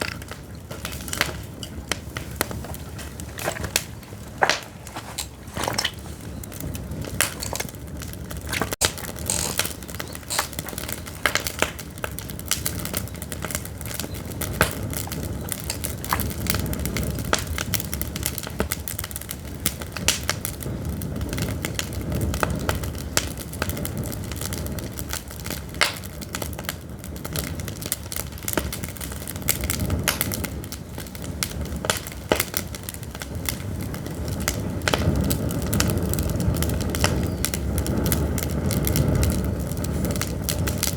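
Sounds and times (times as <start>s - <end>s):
firewood crackling and popping: 0.0s - 40.9s
low rush of flame: 28.8s - 40.9s.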